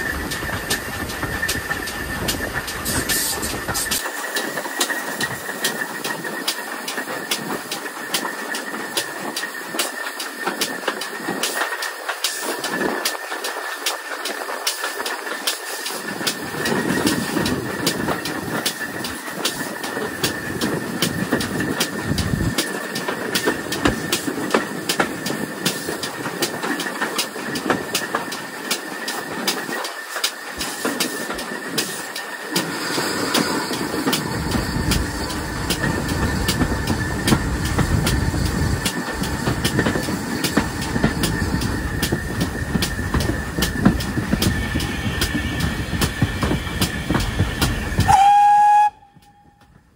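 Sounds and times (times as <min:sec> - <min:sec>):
train rumble: 0:00.0 - 0:49.9
train wheels clicking over rails: 0:00.0 - 0:49.9.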